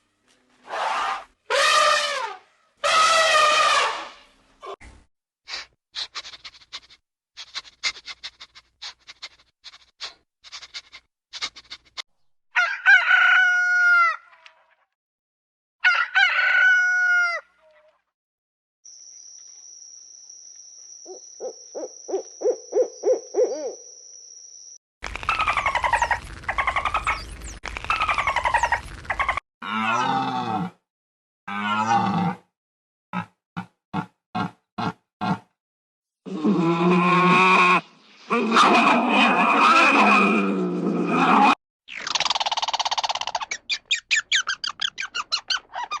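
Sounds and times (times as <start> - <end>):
rooster crowing: 12.6 - 14.2, 15.8 - 17.4.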